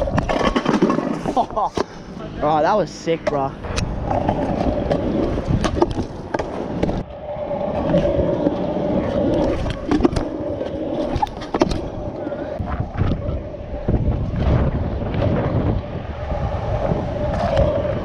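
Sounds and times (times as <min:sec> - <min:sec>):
scooter deck clacking down: 0:00.0 - 0:01.9
scooter wheels rolling: 0:00.0 - 0:18.0.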